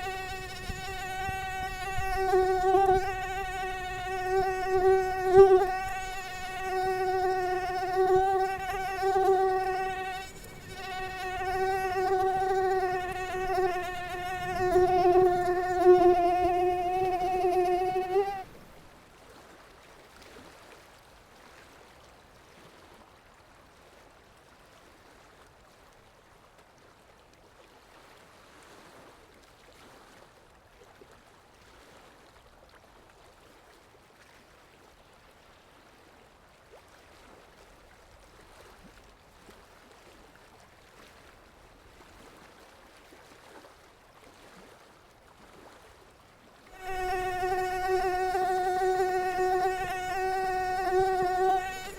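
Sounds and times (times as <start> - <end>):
mosquito wingbeat whine: 0.0 - 18.5, 46.7 - 51.9
faint hiss: 0.0 - 19.0, 46.7 - 51.9.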